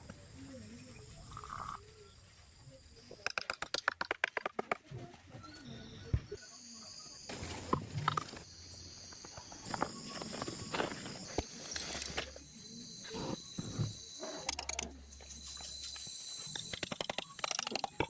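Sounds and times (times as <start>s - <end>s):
high insect drone: 6.4s - 18.0s.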